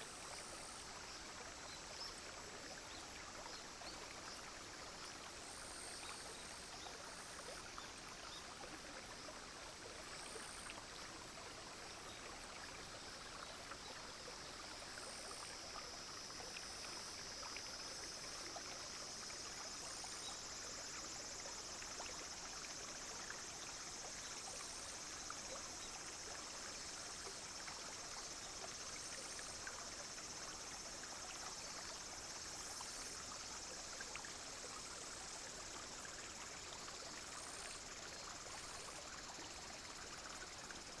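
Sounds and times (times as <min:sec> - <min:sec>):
stream trickling: 0:00.0 - 0:41.0
high insect drone: 0:09.7 - 0:41.0.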